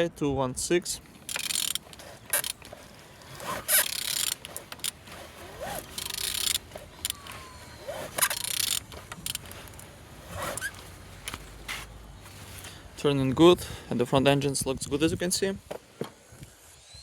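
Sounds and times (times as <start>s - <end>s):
short squeaks: 1.3s - 9.4s, 10.3s - 10.8s.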